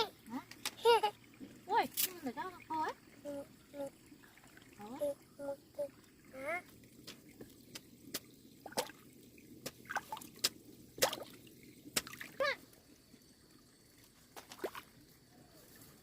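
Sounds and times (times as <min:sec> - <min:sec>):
water drops plopping: 0:07.0 - 0:12.6.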